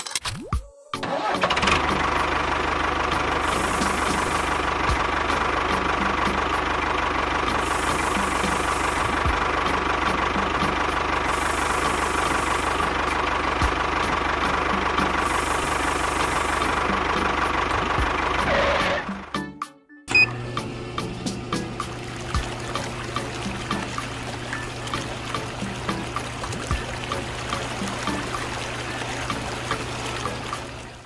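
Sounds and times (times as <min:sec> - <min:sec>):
tractor engine idling: 0:01.0 - 0:19.3, 0:20.8 - 0:31.0.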